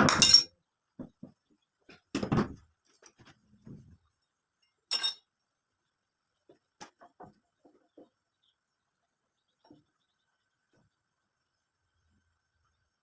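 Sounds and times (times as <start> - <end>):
hard objects clinking and knocking: 0.0 - 0.5.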